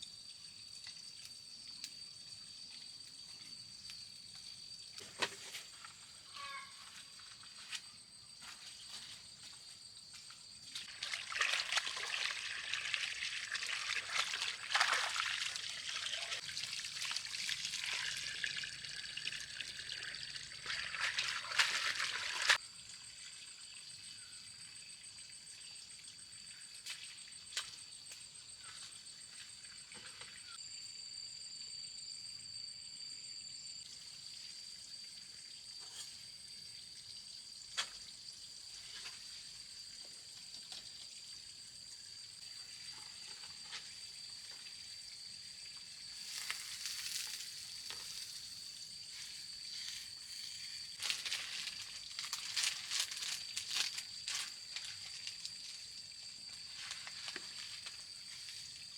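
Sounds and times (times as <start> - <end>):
water trickling and splashing: 10.7 - 27.9, 36.6 - 58.9.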